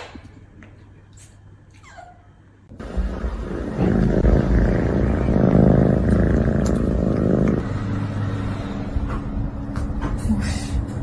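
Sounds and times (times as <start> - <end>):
cat purring loudly: 2.7 - 7.6.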